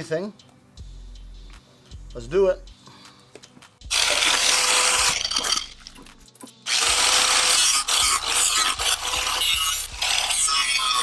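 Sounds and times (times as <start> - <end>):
power tool cutting metal: 3.9 - 5.7, 6.7 - 11.0.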